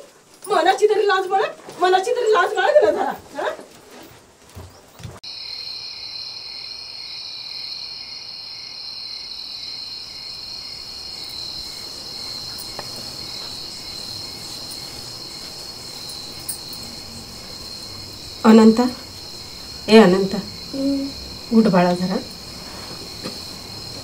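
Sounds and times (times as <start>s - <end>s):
crickets trilling: 0.0s - 24.0s
pulsing cricket chirp: 5.2s - 24.0s.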